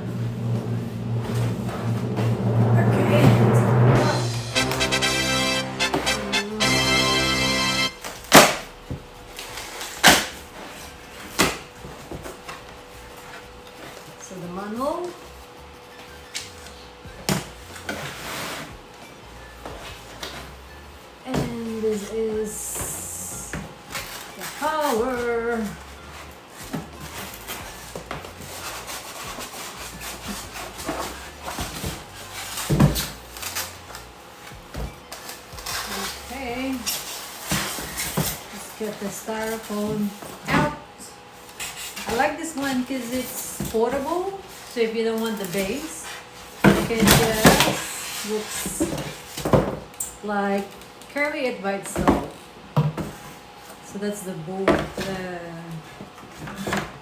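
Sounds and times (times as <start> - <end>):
knocks and scrapes: 0.0 - 7.8
background music: 0.0 - 8.4.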